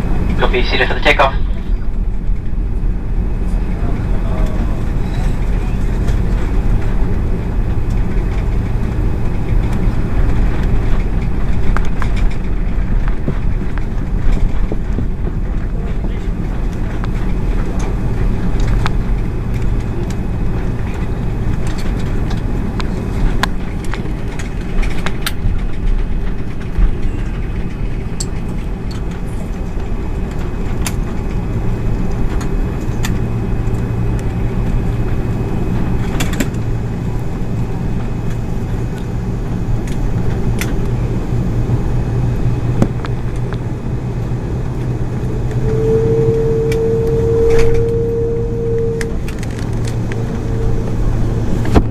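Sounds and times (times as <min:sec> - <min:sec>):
airplane engine and airflow noise: 0:00.0 - 0:51.9
steady mid-pitched tone: 0:44.9 - 0:51.9.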